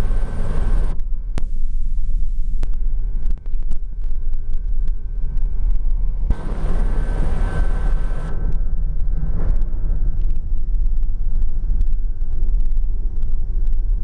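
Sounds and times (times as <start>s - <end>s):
hiss with thin steady tone: 0.0s - 8.4s
helicopter drone: 0.0s - 14.0s.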